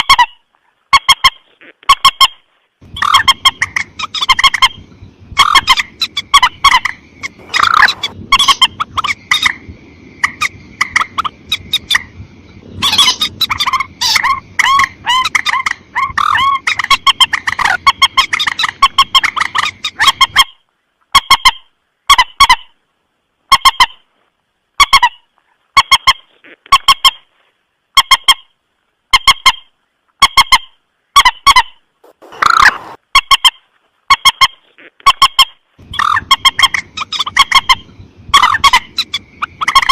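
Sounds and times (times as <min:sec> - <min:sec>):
moorhen harsh honking calls: 0:00.0 - 0:09.6, 0:12.8 - 0:20.6, 0:29.1 - 0:39.9
background hiss: 0:00.0 - 0:39.9.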